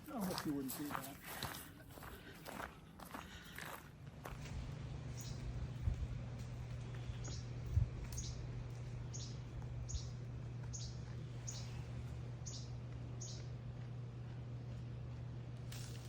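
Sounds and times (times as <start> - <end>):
bird chirping: 5.2 - 5.4, 6.9 - 8.4, 9.1 - 13.5.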